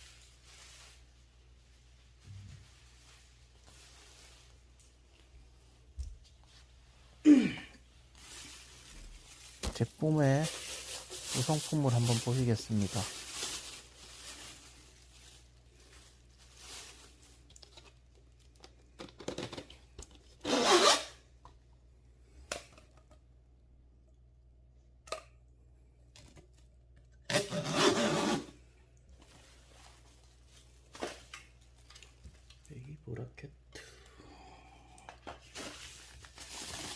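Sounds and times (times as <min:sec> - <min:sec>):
packaging rustling and tearing: 0:08.1 - 0:21.0, 0:29.2 - 0:32.9, 0:35.4 - 0:36.9.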